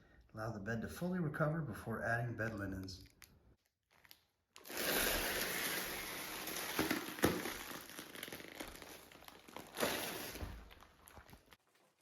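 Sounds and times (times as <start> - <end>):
plastic bag crinkling and rustling: 3.1 - 12.0.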